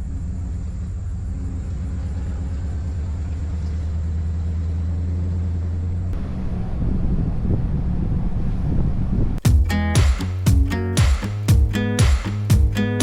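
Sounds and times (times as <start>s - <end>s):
car cabin road and engine rumble: 0.0s - 9.4s.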